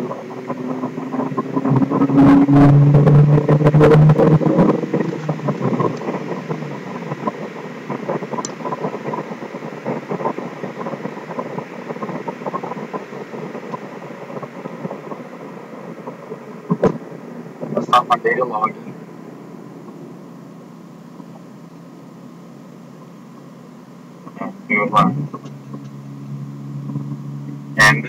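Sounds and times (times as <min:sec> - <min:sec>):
car engine dropping to idle: 0:00.0 - 0:28.0.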